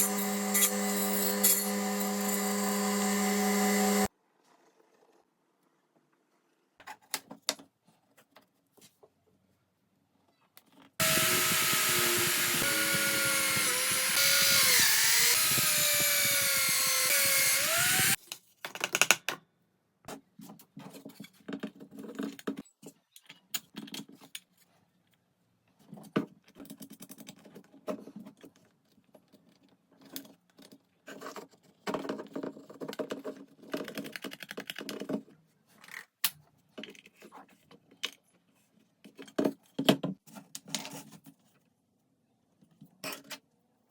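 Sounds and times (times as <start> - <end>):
electric power tool motor: 0.0 - 4.1, 11.0 - 18.2.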